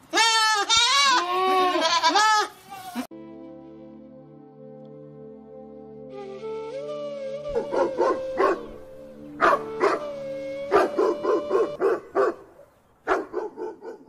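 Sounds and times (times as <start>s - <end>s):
dog barking: 7.5s - 8.8s, 9.4s - 10.1s, 10.7s - 14.0s.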